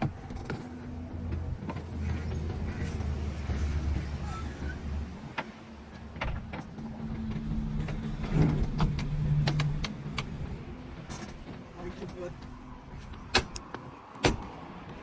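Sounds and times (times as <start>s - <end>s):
sharp clicks and knocks: 5.3s - 15.0s.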